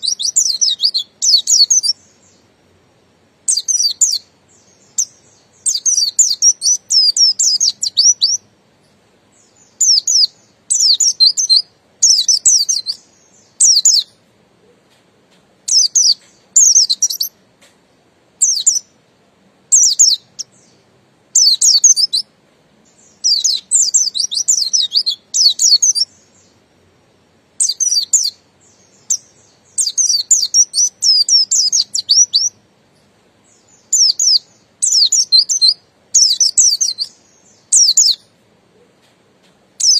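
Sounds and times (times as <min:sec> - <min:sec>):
bird twittering: 0:00.0 - 0:02.5, 0:03.5 - 0:08.4, 0:09.3 - 0:14.2, 0:15.7 - 0:17.4, 0:18.4 - 0:19.0, 0:19.7 - 0:20.8, 0:21.4 - 0:26.6, 0:27.6 - 0:32.6, 0:33.4 - 0:38.9.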